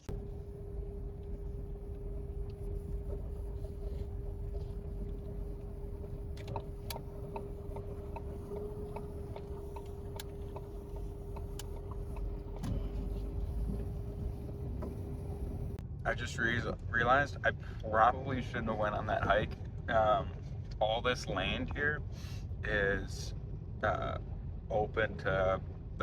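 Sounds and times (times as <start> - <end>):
constant hum: 0.0 - 15.8
road rumble inside car: 0.0 - 15.8
light ticks: 0.1 - 15.8.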